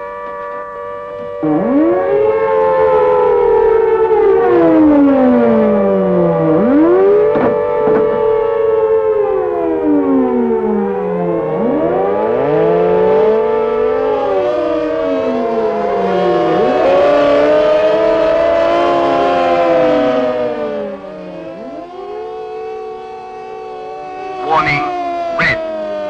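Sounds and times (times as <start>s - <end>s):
air-raid sirens wailing: 0.0s - 26.0s.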